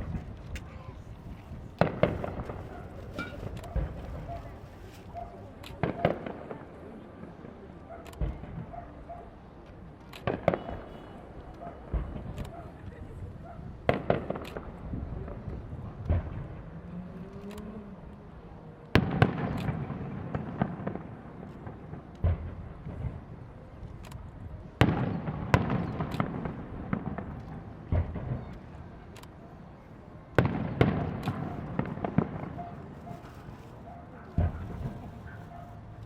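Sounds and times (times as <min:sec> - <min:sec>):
firework crackling: 0:00.0 - 0:06.7, 0:30.4 - 0:36.0
firework shells booming: 0:01.8 - 0:04.6, 0:10.2 - 0:12.5, 0:13.8 - 0:14.9, 0:19.0 - 0:23.3, 0:24.8 - 0:28.5, 0:30.4 - 0:33.2.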